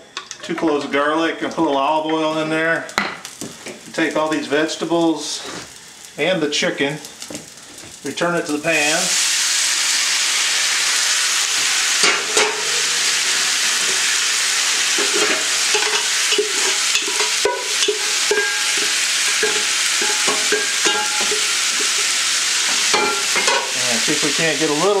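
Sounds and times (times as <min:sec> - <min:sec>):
food sizzling in a pan: 0:00.9 - 0:25.0
utensil knocking and scraping pan: 0:14.9 - 0:23.7.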